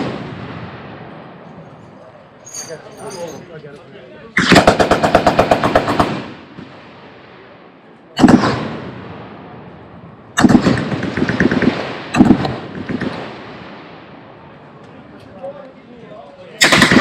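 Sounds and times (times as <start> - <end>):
machine-gun fire: 4.4 - 6.8, 8.2 - 9.0, 10.4 - 13.8, 16.6 - 17.0
single heavy gunshot report: 6.1 - 9.6.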